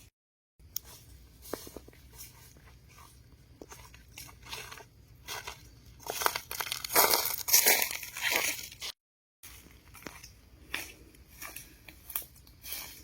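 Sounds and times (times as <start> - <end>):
crunching and rustling: 0.7 - 13.0.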